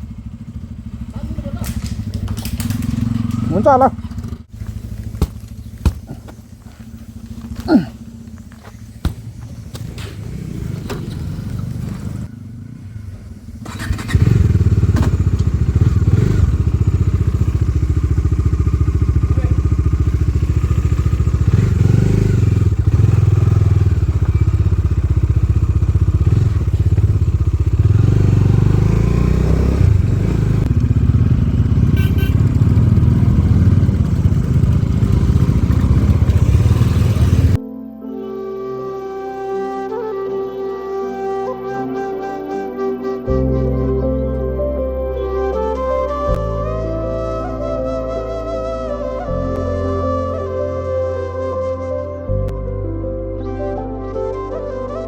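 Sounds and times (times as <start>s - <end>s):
motorcycle engine rumbling: 0.0s - 37.6s.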